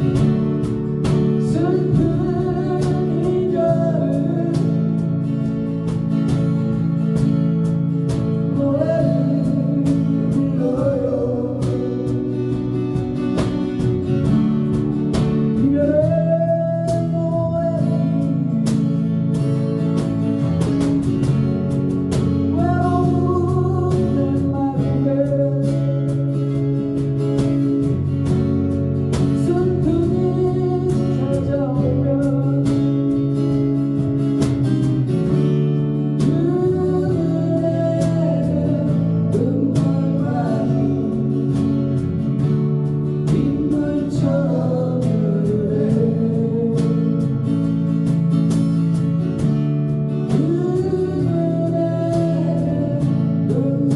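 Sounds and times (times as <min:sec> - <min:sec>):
person singing with vibrato: 0:00.0 - 0:05.7, 0:07.8 - 0:13.3, 0:15.3 - 0:19.4, 0:22.3 - 0:27.7, 0:29.2 - 0:33.8, 0:35.9 - 0:47.8, 0:50.1 - 0:53.9
strummed guitar chords: 0:00.0 - 0:53.9.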